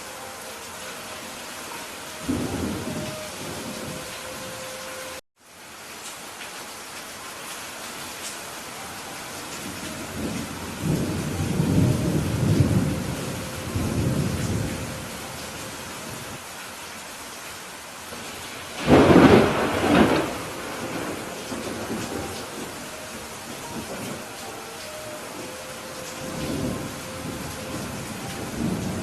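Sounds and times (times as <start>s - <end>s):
steady rain falling: 0.0s - 29.0s
thunder rumbling: 1.7s - 4.8s, 9.6s - 16.4s, 18.8s - 29.0s.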